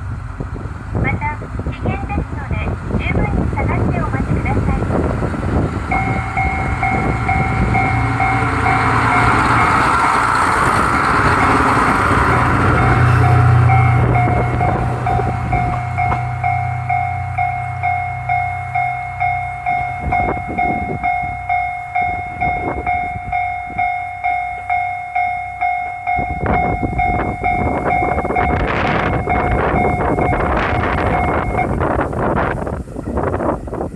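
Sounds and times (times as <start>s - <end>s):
diesel railcar engine rumble: 0.0s - 33.9s
level crossing bell ringing: 5.9s - 10.2s, 11.3s - 31.8s.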